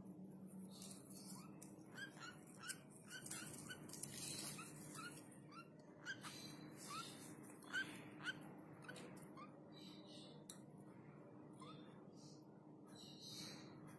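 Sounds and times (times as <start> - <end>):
baby bird peeping: 0.7 - 10.5.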